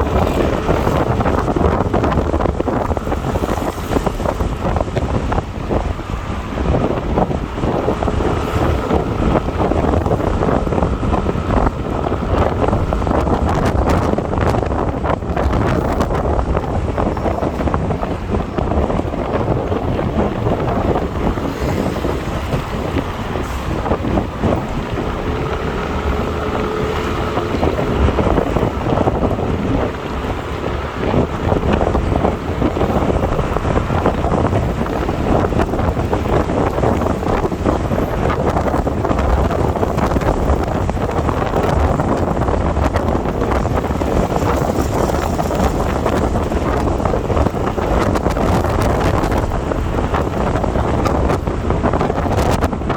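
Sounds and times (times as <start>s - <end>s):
motorbike engine: 0.0s - 52.9s
road noise: 0.0s - 52.9s
wind buffeting microphone: 0.0s - 52.9s.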